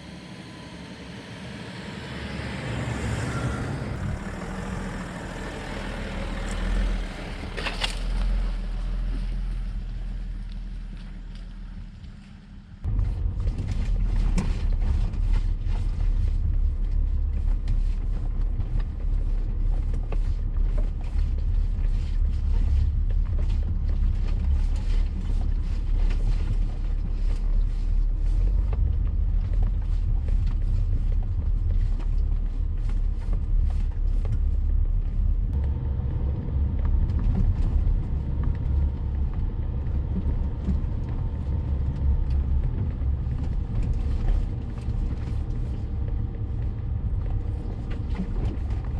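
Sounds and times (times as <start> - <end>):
car driving off-road rumbling: 0.0 - 48.9
knocks and creaks from bumps: 12.8 - 48.9.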